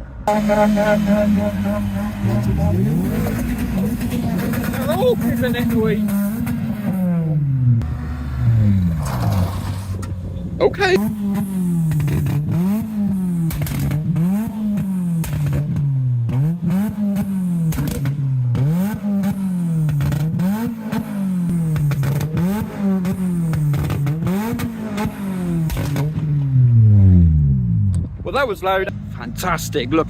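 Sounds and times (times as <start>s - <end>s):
car engine revving hard: 0.3s - 10.2s, 10.9s - 27.9s
exhaust pops: 8.8s - 20.4s, 21.5s - 28.2s.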